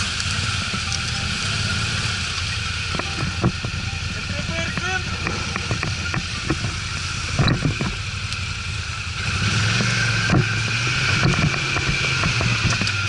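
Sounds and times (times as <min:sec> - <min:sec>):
atv engine running: 0:00.0 - 0:13.0
short knocks and clatter: 0:09.8 - 0:13.0.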